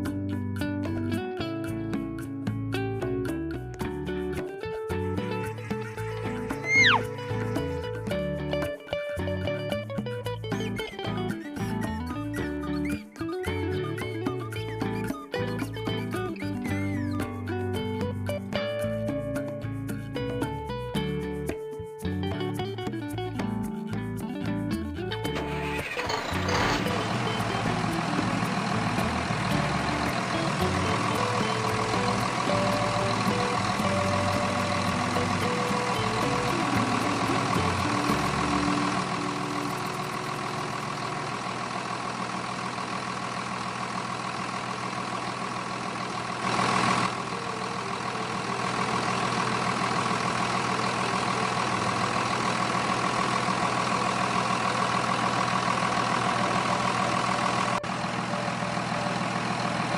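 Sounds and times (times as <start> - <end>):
heavy engine running: 3.9 - 21.0, 24.8 - 59.9.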